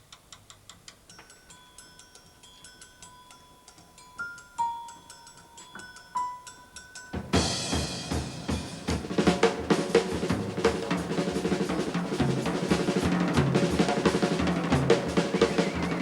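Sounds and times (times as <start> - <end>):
drum kit beat: 7.1 - 16.0
instrumental band music: 7.1 - 16.0.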